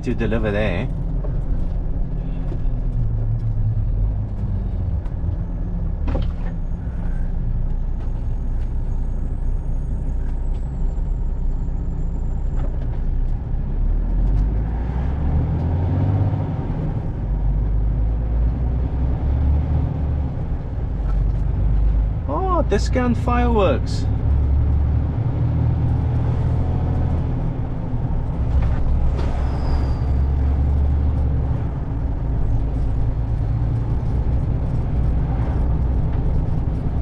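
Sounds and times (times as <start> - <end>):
lorry diesel engine rumble: 0.0 - 37.0.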